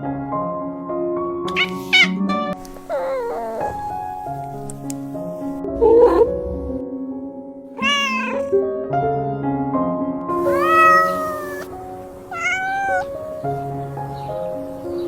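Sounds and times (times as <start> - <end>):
soft piano music: 0.0 - 15.0
cat meowing: 1.5 - 4.2, 7.8 - 8.6, 10.3 - 14.8.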